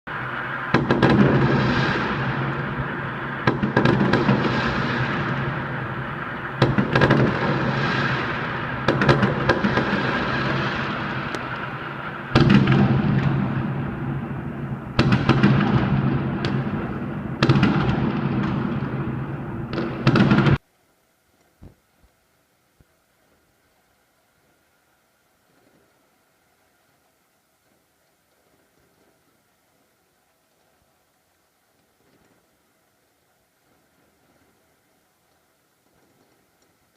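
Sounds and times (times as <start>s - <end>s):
fireworks bursting: 0.1s - 20.6s, 31.6s - 33.0s.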